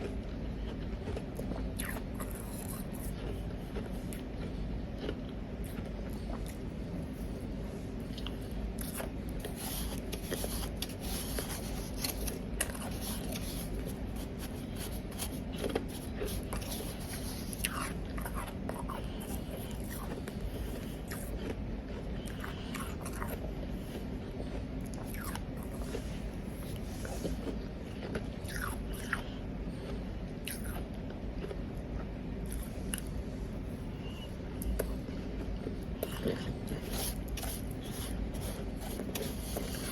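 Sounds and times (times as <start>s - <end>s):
ice being chewed: 0.0s - 33.2s, 34.0s - 39.9s
low steady hum: 0.0s - 39.9s.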